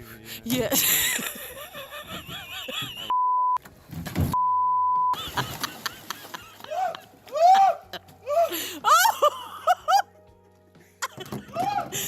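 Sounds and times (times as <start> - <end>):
censor bleep: 3.1 - 3.6, 4.4 - 5.2
excited shouting: 6.7 - 9.1.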